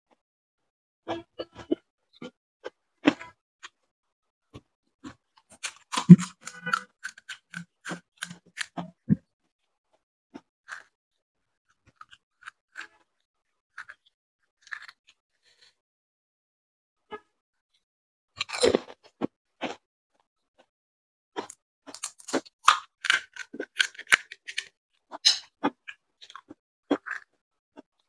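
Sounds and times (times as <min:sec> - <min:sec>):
crunchy chewing: 0:05.4 - 0:08.9, 0:13.8 - 0:14.0, 0:14.6 - 0:15.1, 0:21.4 - 0:27.4.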